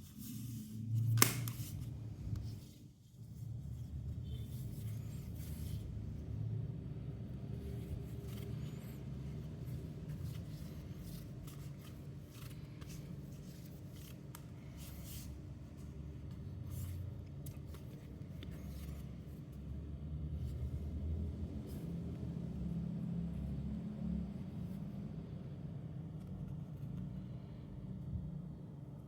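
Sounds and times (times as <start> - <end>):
rustling objects being handled: 7.4 - 19.7.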